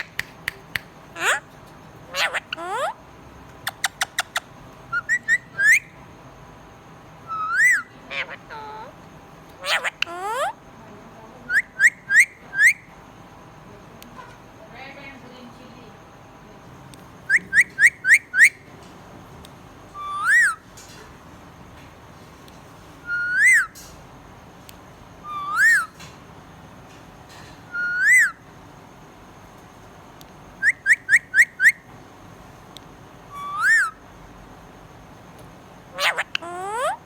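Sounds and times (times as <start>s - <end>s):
clear pure whistles: 4.9s - 6.0s, 7.2s - 7.9s, 17.2s - 18.7s, 20.0s - 20.6s, 23.0s - 23.8s, 25.2s - 26.0s, 27.7s - 28.4s, 30.6s - 31.8s, 33.3s - 34.0s.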